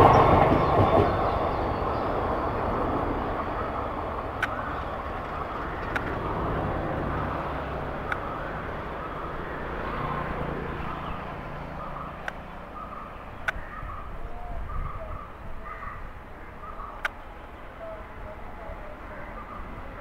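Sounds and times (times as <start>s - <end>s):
train coaches rumbling on rails: 0.0s - 13.4s
sharp clicks: 13.4s - 13.6s, 17.0s - 17.2s.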